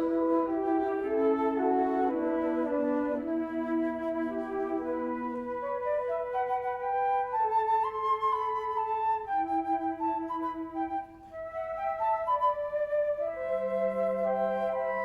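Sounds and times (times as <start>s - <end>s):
flute playing slow melody: 0.0s - 15.0s.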